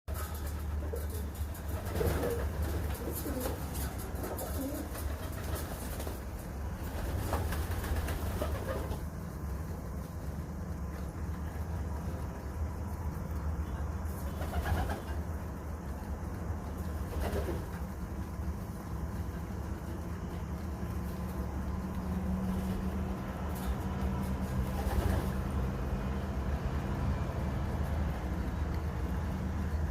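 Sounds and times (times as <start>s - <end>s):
low background rumble: 0.1s - 29.9s
pigeons cooing: 0.3s - 6.0s, 8.0s - 9.0s.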